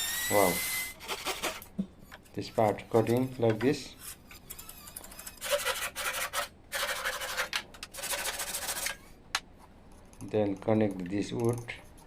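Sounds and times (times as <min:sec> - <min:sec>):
tool scraping and cutting wood: 0:00.0 - 0:09.2.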